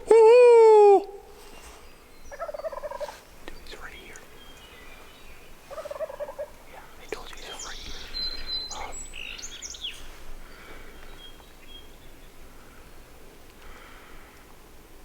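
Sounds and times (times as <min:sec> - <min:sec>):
songbirds chirping: 0:01.0 - 0:15.0
turkey gobbling: 0:02.4 - 0:03.2, 0:05.7 - 0:06.6.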